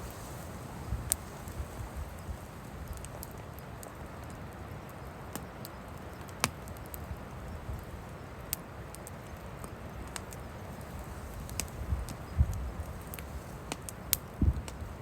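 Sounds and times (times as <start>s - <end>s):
wind rumble on microphone: 0.0s - 3.5s, 9.7s - 15.0s
wood fire crackling: 0.0s - 15.0s.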